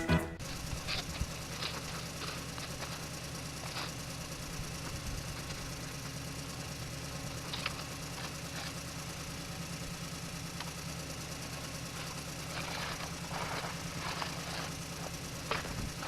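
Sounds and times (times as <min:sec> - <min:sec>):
engine idling: 0:00.0 - 0:16.0
rustling scrapes: 0:12.0 - 0:15.8.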